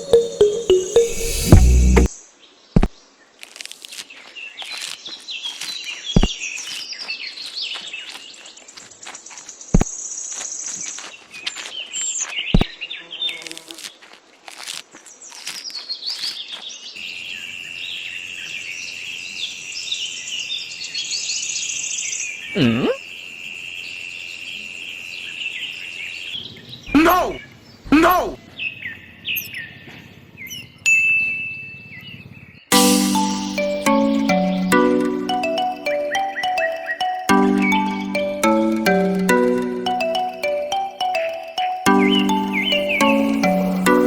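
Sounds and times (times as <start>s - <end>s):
birds chirping: 32.7s - 44.0s.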